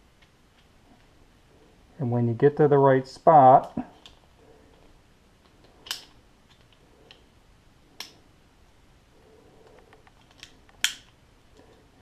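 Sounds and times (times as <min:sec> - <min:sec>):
pistol slide metal clicks: 0:05.8 - 0:06.7, 0:10.4 - 0:11.2.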